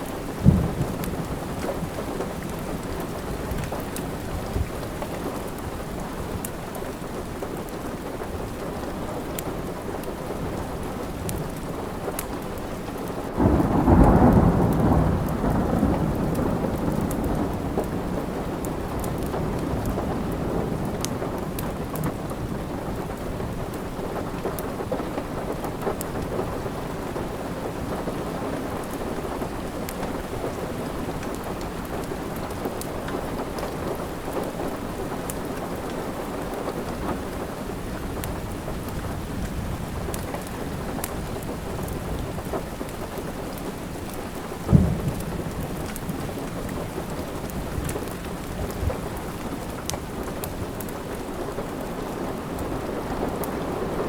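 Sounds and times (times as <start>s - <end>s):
steady rain: 0.0s - 54.0s
wood fire crackling: 28.2s - 53.8s.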